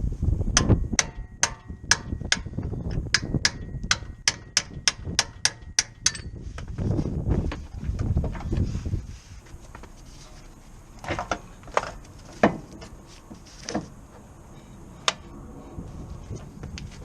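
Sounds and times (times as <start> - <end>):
low handling rumble: 6.0 - 17.0.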